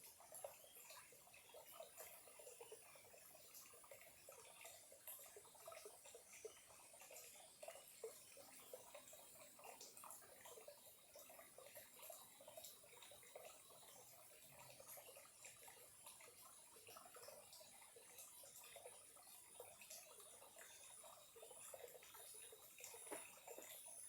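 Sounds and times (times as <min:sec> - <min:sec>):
stream trickling: 0:00.0 - 0:24.0.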